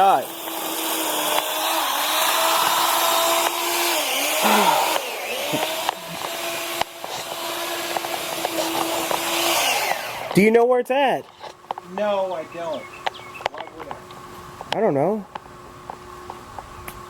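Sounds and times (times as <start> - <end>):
electric motor whirring: 0.0 - 10.6.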